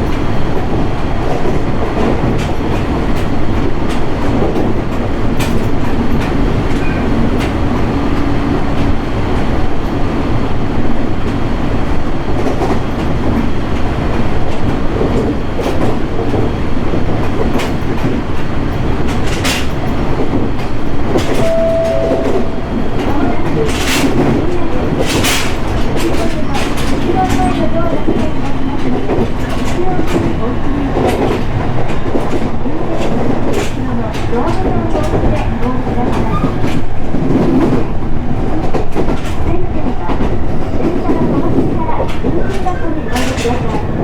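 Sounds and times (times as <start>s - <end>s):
train wheels rumbling on rail: 0.0s - 21.9s, 23.1s - 44.0s.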